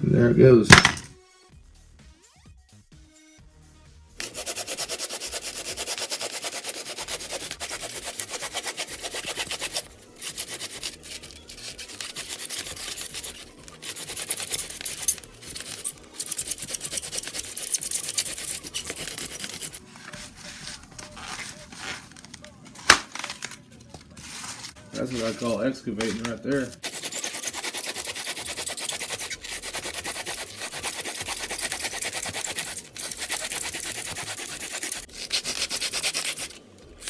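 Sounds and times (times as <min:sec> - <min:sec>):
hacksaw sawing through foam: 0:04.2 - 0:19.8, 0:26.8 - 0:36.6.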